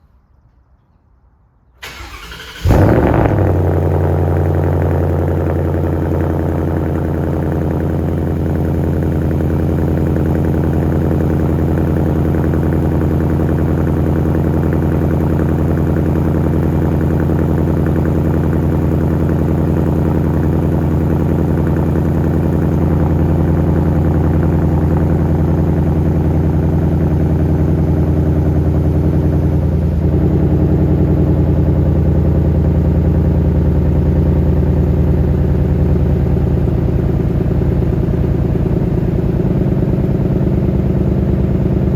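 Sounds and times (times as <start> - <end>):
car engine starting and idling: 1.8 - 41.9.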